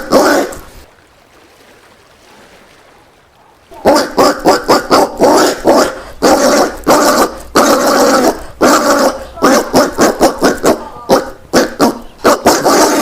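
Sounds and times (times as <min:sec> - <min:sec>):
peccary calls: 0:00.0 - 0:00.7, 0:03.5 - 0:13.0.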